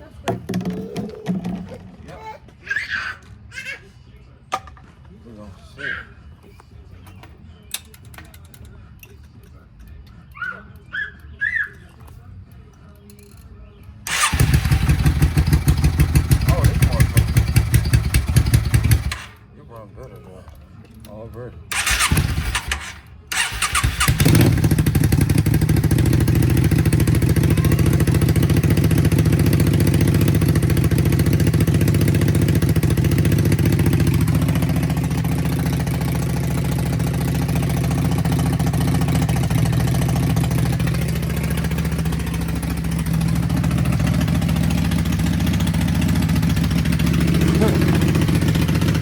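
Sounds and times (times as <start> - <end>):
motorcycle engine cranking: 12.9 - 19.5, 21.0 - 49.0
motorcycle engine idling: 13.8 - 19.4, 21.7 - 49.0.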